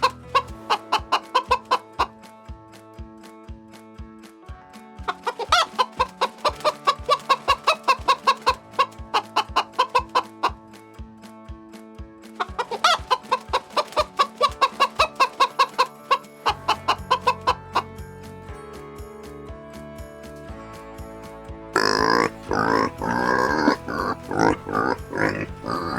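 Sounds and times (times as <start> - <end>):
chicken clucking: 0.0 - 2.1, 5.1 - 10.6, 12.4 - 17.8, 21.8 - 25.9
chicken squawk: 0.0 - 2.1, 5.1 - 10.6, 12.4 - 17.6, 21.8 - 25.9.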